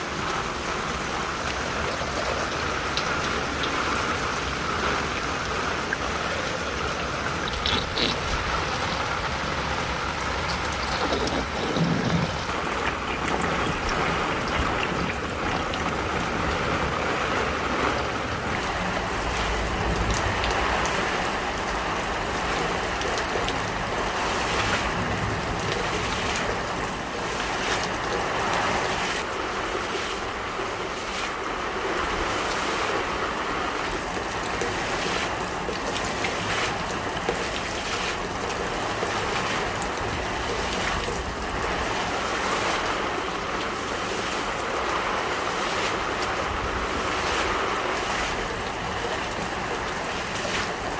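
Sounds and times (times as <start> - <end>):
heavy rain pouring: 0.0 - 50.9.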